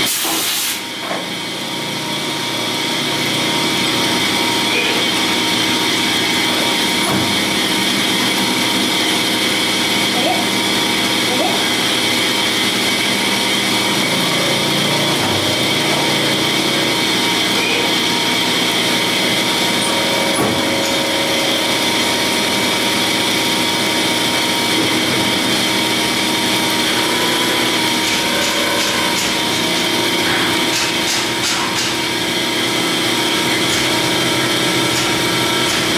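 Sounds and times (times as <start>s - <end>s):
machining noise: 11.6s - 35.9s.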